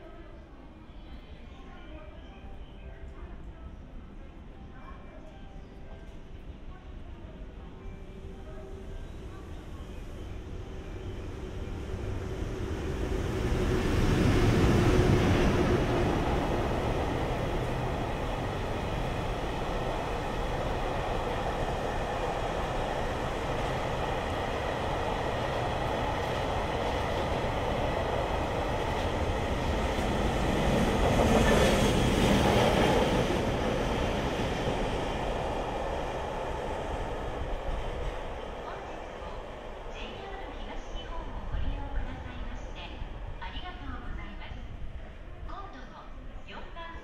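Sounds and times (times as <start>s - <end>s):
train wheels rumbling on rails: 10.4s - 45.2s.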